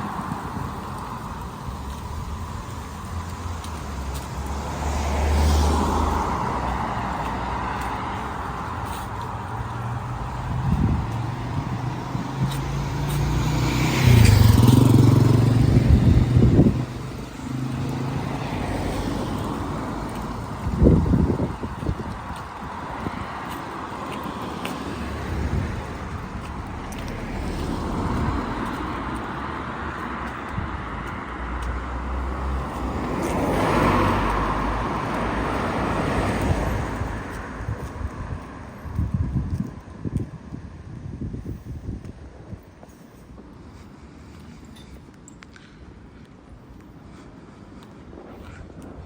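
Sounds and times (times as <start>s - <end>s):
vehicle engine passing: 1.5s - 22.1s, 22.7s - 38.4s.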